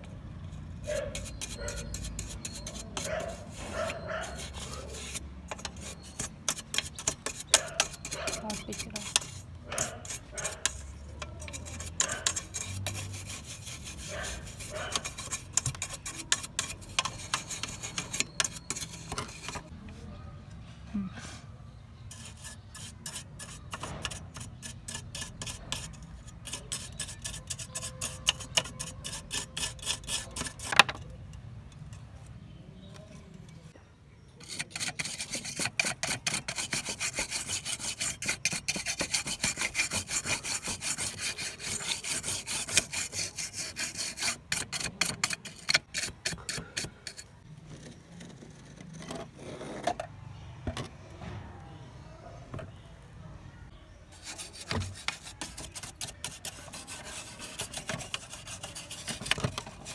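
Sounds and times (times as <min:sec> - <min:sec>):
sanding rasping strokes: 0:00.8 - 0:19.7, 0:22.1 - 0:30.8, 0:34.4 - 0:47.3, 0:54.1 - 0:59.9.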